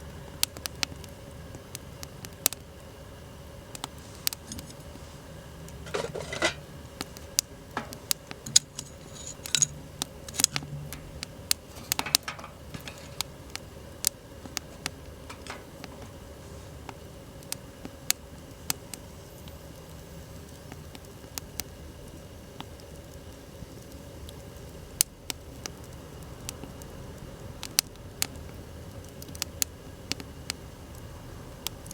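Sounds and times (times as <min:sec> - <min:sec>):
wood fire crackling and popping: 0:00.1 - 0:19.1, 0:20.6 - 0:31.9
rustling handling noises: 0:03.8 - 0:13.5, 0:14.4 - 0:16.8.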